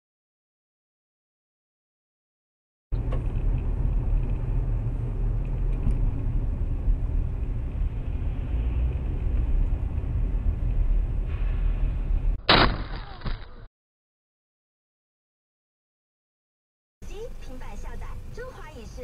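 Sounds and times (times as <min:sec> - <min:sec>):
moving vehicle rumble: 0:02.9 - 0:13.7, 0:17.0 - 0:19.0.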